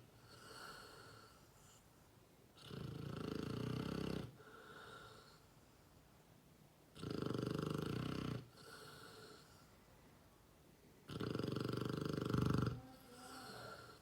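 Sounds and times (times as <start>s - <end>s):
dog snoring loudly: 2.6s - 5.2s, 6.9s - 9.5s, 11.1s - 14.0s
dog breathing: 2.6s - 5.8s, 11.1s - 14.0s.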